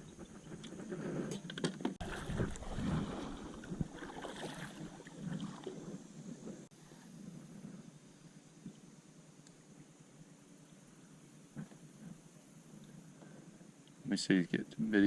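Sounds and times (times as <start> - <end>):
kayak paddle splashing: 2.0 - 6.7.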